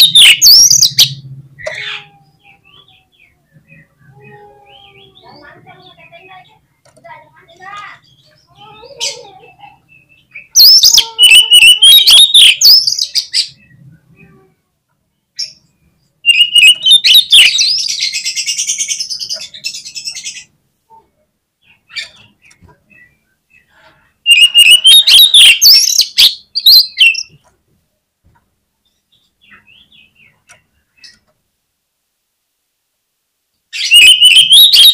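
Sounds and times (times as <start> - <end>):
bird warbling: 0.0 - 2.7, 10.5 - 13.0, 33.8 - 34.9.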